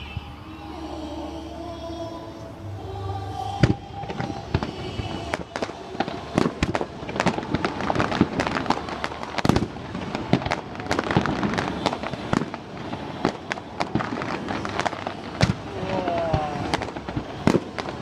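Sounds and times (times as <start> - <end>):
fireworks bangs and crackles: 3.6 - 18.0
heavy fireworks booms: 3.6 - 18.0.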